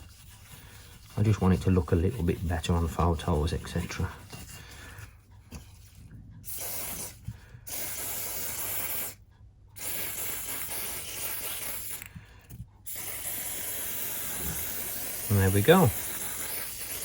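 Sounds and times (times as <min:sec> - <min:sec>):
spray hissing: 0:09.8 - 0:12.1, 0:12.9 - 0:17.0.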